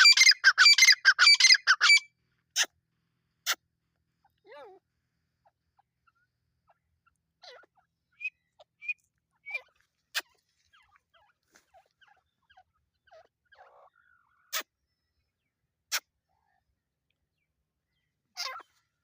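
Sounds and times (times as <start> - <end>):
francolins chirping: 0.0 - 2.1.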